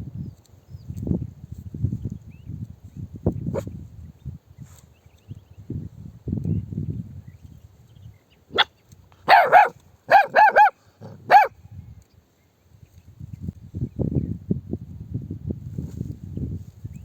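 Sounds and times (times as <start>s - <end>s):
dog barking: 9.3s - 11.5s
dog yelp: 9.3s - 11.5s.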